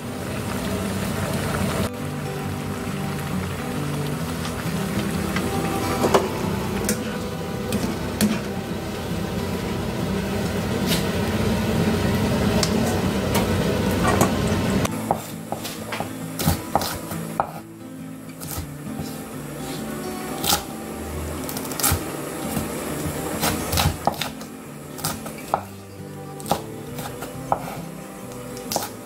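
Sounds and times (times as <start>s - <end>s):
food sizzling in oil: 0.0s - 29.0s
knife chopping on wooden board: 23.4s - 24.3s.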